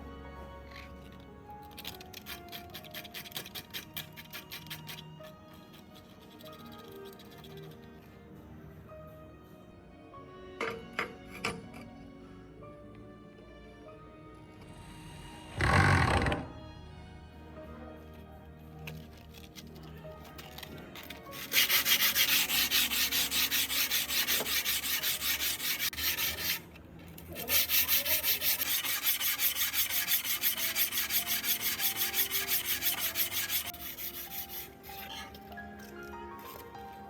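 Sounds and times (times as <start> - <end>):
quiet background music: 0.0 - 37.0
abrasive rubbing by hand: 21.4 - 26.6, 27.4 - 35.3.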